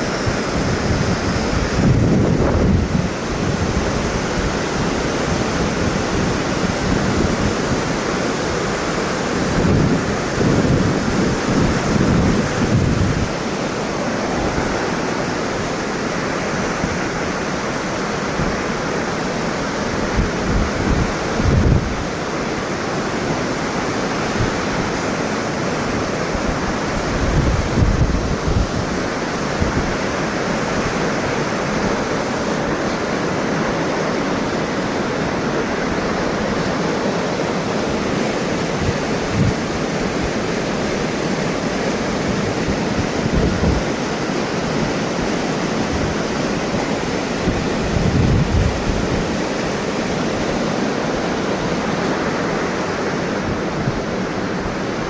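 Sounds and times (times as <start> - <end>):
waterfall rushing: 0.0 - 55.0
wind buffeting microphone: 0.1 - 8.0, 9.4 - 13.4, 20.0 - 22.1, 26.4 - 30.2, 42.3 - 44.1, 47.4 - 49.6.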